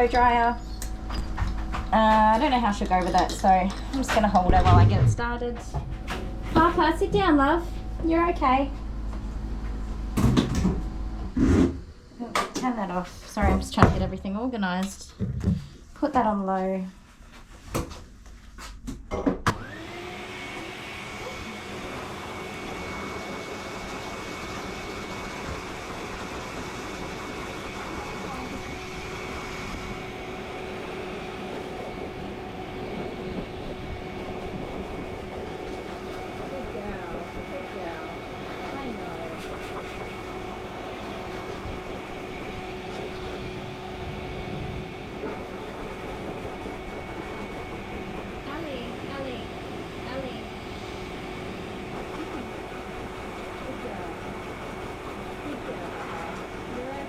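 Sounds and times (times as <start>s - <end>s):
blow dryer whirring: 19.4s - 57.0s.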